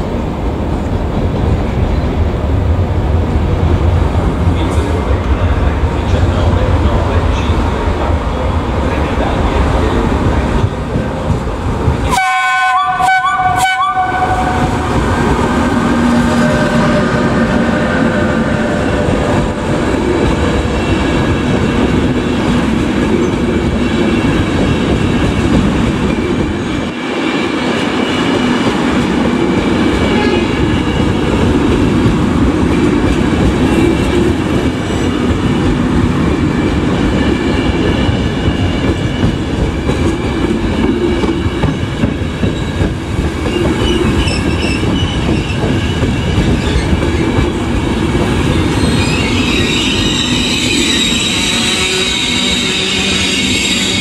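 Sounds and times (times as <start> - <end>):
high wheel squeal: 43.5 - 46.0, 48.6 - 54.0.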